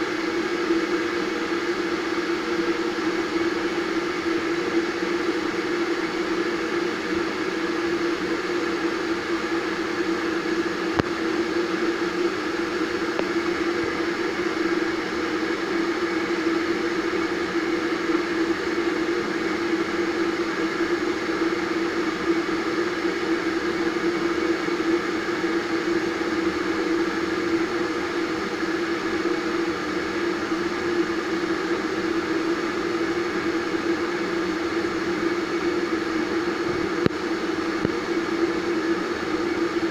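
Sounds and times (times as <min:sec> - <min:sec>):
electric kettle heating water: 0:00.0 - 0:39.9.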